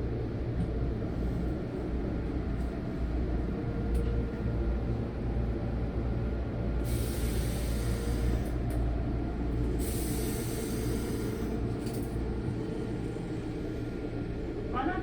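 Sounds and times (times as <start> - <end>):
air brakes hissing: 6.8 - 8.6, 9.8 - 12.1
electric train humming: 7.2 - 15.0.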